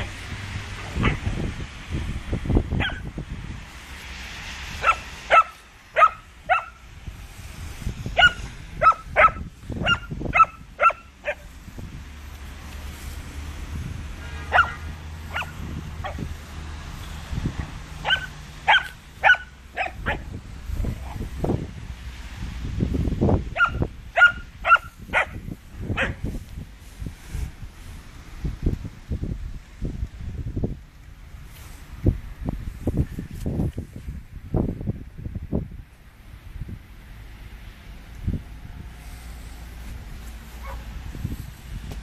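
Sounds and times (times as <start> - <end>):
puppy barking: 2.8 - 3.1, 4.8 - 6.8, 8.2 - 11.5, 14.5 - 16.2, 18.0 - 20.3, 23.6 - 25.4, 26.0 - 26.2, 40.6 - 40.9.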